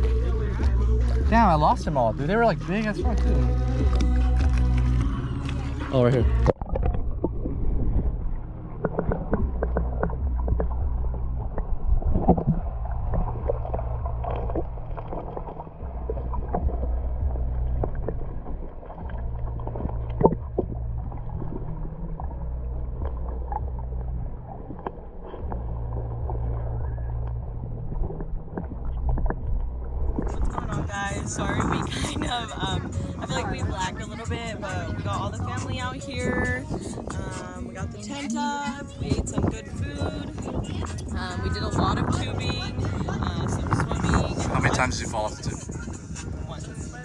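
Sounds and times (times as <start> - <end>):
lake water lapping: 0.0 - 47.0
wind rumbling on microphone: 0.0 - 47.0.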